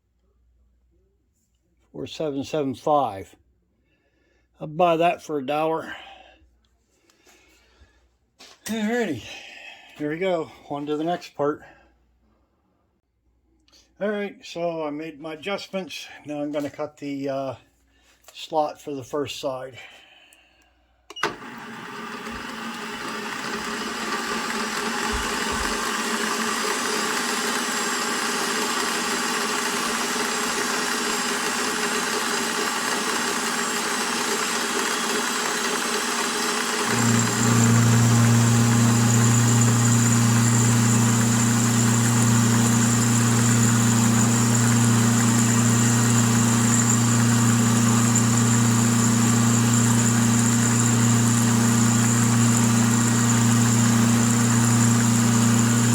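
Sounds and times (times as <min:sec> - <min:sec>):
milling machine cutting steel: 0:21.3 - 0:55.9.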